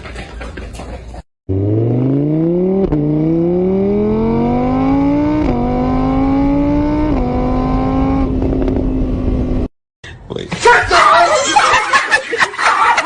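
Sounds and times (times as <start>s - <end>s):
engine accelerating through gears: 1.5s - 9.7s.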